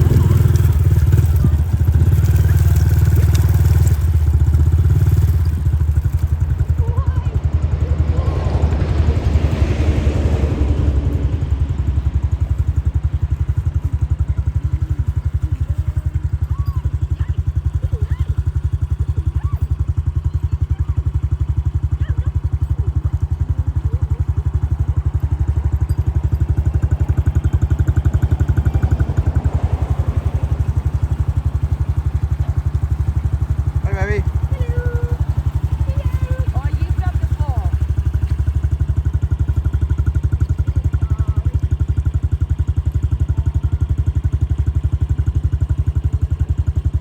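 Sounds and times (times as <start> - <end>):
motorcycle engine running: 0.0 - 47.0.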